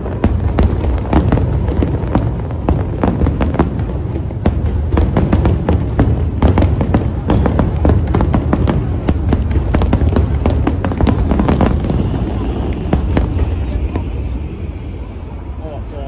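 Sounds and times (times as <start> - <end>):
fireworks bangs and crackles: 0.0 - 16.0
low rumble: 11.0 - 15.8.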